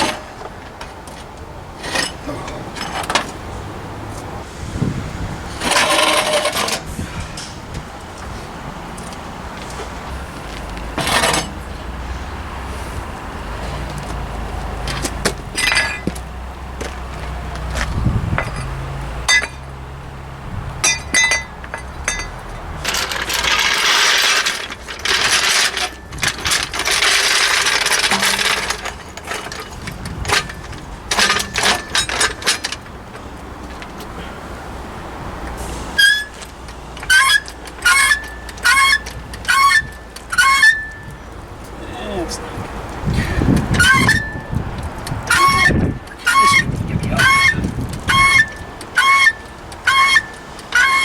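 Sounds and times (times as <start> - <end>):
metal tools clinking: 1.8 - 3.4, 5.6 - 7.6, 9.0 - 11.7, 14.8 - 19.7, 20.8 - 34.0, 36.0 - 51.0
harsh rasping noise: 45.2 - 51.0.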